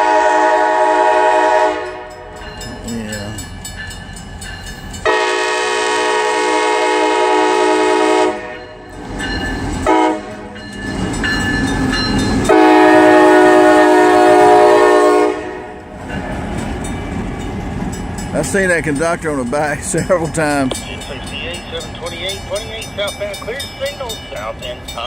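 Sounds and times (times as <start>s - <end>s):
locomotive air horn blasts: 0.0s - 2.3s, 5.0s - 8.7s, 9.9s - 10.5s, 12.5s - 15.8s
locomotive engine rumbling: 0.0s - 25.0s
locomotive bell ringing faintly: 1.8s - 5.7s, 8.4s - 13.0s, 16.1s - 25.0s.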